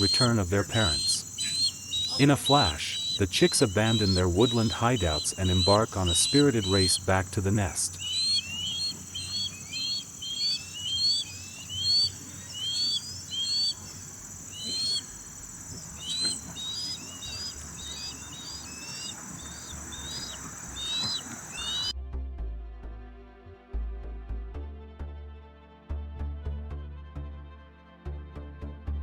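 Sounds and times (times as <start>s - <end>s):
high-pitched insect drone: 0.0s - 21.9s
osprey whistled chirps: 0.0s - 21.9s
music: 21.9s - 29.0s.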